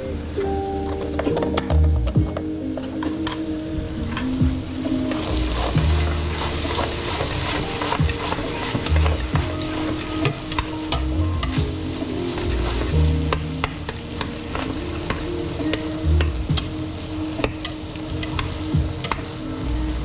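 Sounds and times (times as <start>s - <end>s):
food sizzling: 0.0s - 20.0s
spoon scraping a metal pot: 5.1s - 11.6s.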